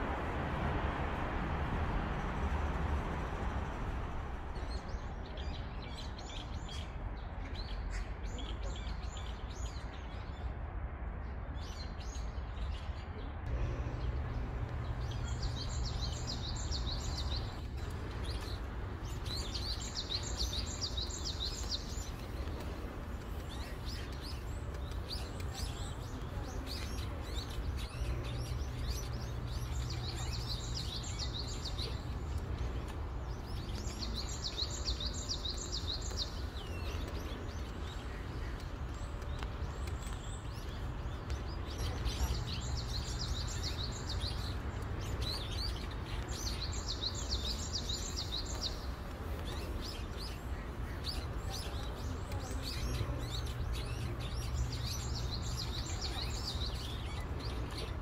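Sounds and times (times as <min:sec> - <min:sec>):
bird chirps: 0:13.5 - 0:58.0
songbirds trilling: 0:13.5 - 0:58.0.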